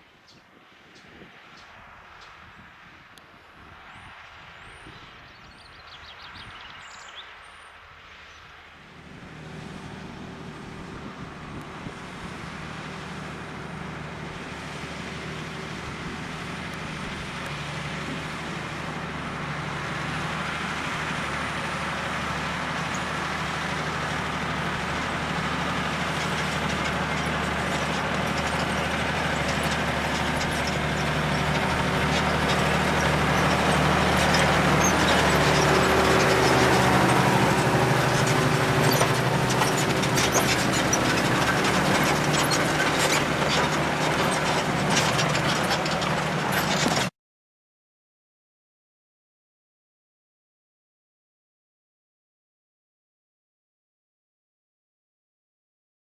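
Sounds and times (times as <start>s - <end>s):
bird chirps: 5.4s - 7.7s
tractor diesel engine running: 8.6s - 47.1s.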